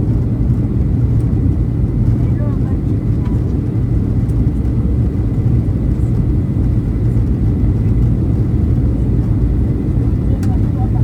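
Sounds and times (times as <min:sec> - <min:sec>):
jet engine rumble in cabin: 0:00.0 - 0:11.0.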